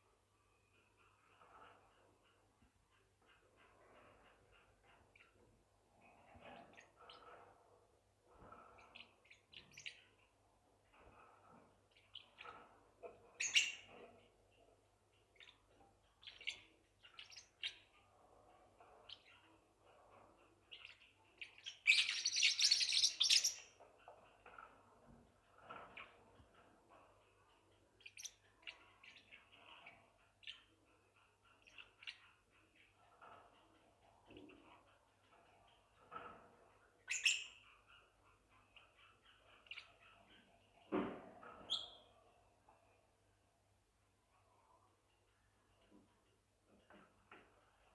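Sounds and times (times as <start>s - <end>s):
parrot chicks chirping: 8.2s - 40.9s, 41.5s - 42.2s.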